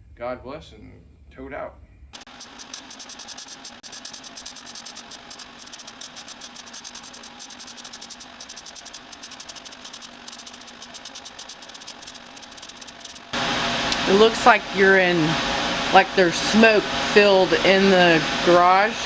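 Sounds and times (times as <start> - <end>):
welding arc crackling: 2.2 - 17.3.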